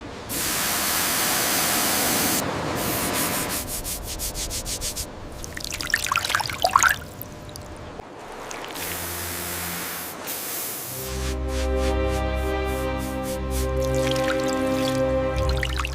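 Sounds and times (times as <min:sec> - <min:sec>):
spraying hiss: 0:00.3 - 0:05.1, 0:08.7 - 0:15.9
scraping or brushing strokes: 0:02.8 - 0:05.1, 0:08.8 - 0:15.9.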